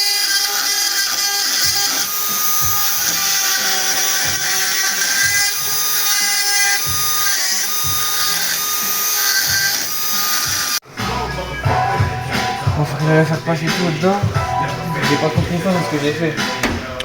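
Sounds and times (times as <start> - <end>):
power tool whining: 0.0 - 10.8
background music with beat: 10.8 - 17.0.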